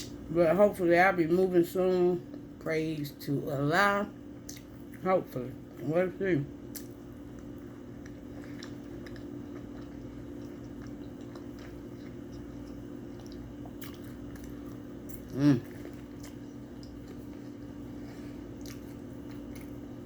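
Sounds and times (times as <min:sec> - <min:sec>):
steady low hum: 0:00.0 - 0:20.0
chewing and biting: 0:06.7 - 0:20.0
person humming: 0:15.3 - 0:15.7.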